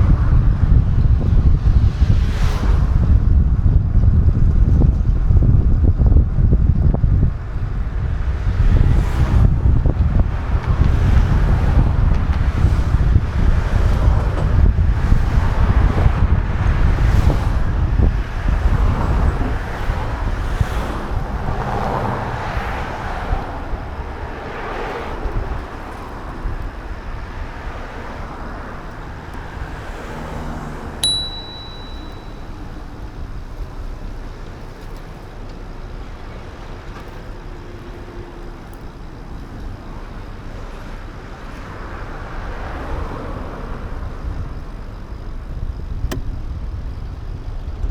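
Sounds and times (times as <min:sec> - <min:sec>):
wind buffeting microphone: 0:00.0 - 0:31.4, 0:32.0 - 0:47.9
road noise: 0:00.0 - 0:47.9
bell ding: 0:31.0 - 0:32.7.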